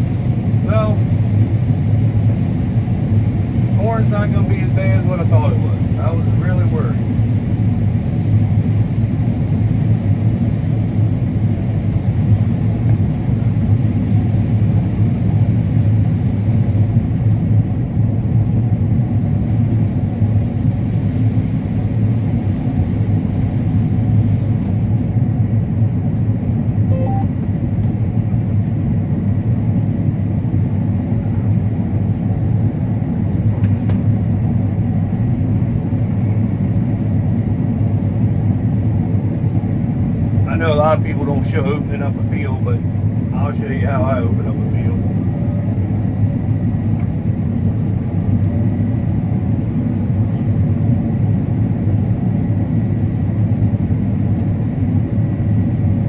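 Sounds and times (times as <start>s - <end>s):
combine harvester running: 26.8s - 28.0s.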